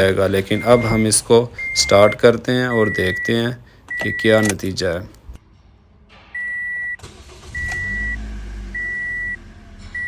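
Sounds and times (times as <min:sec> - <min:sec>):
car warning chime beeping: 0:00.4 - 0:04.6, 0:06.4 - 0:09.4
engine cranking and starting: 0:06.9 - 0:10.0.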